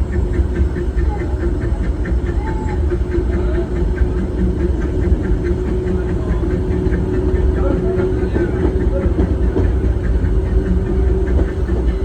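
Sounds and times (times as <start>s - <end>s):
steam train rumbling: 0.0s - 12.0s.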